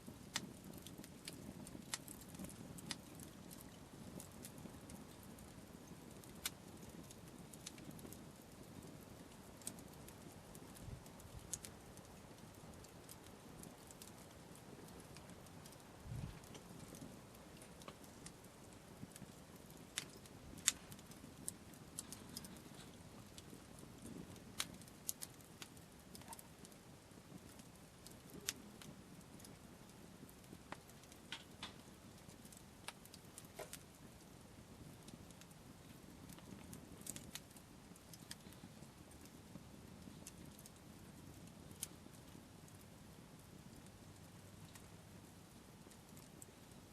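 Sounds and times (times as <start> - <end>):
sharp pops of fire: 0.0 - 41.0
campfire crackling: 0.0 - 46.9
low background rumble: 15.9 - 24.9.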